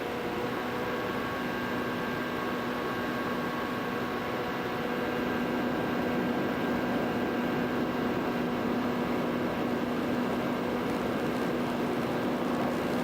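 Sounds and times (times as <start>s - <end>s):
drone motors and propellers humming: 5.0s - 13.0s.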